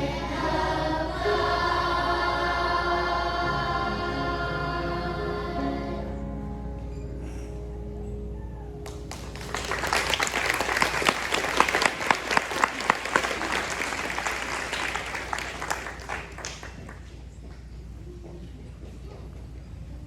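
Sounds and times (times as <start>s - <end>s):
audience applauding: 8.8s - 17.3s.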